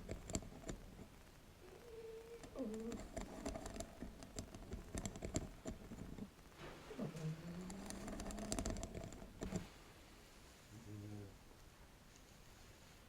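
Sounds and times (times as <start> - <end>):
tapping and scratching on a mat: 0.0 - 1.2, 2.4 - 9.7.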